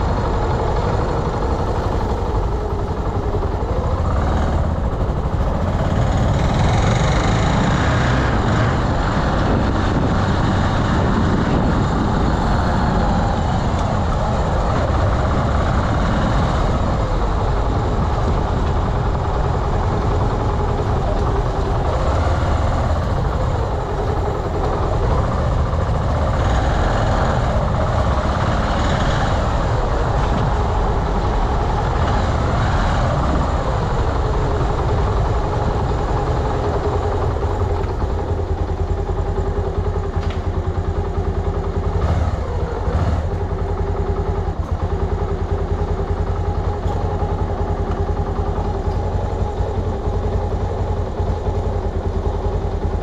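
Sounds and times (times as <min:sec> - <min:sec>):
scooter engine running: 0:00.0 - 0:53.0.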